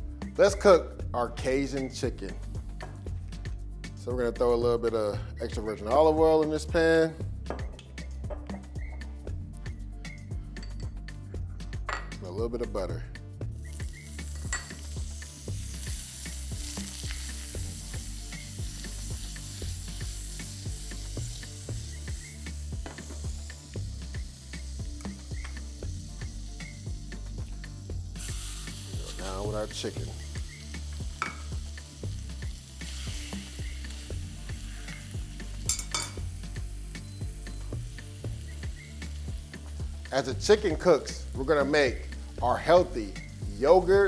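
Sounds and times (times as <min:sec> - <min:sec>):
background music with beat: 0:00.0 - 0:44.0
butter sizzling in a pan: 0:13.5 - 0:44.0.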